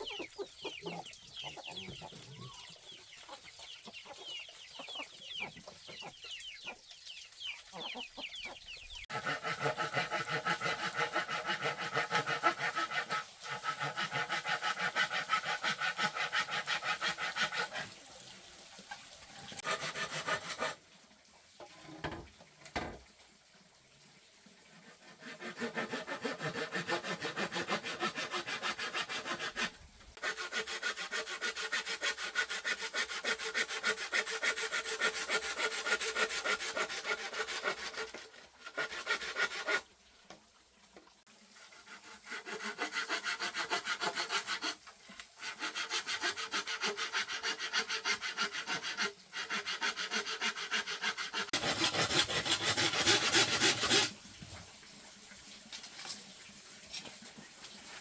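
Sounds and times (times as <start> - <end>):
hand saw cutting bamboo: 9.1 - 18.0, 19.4 - 20.8, 24.7 - 39.9, 41.5 - 54.2.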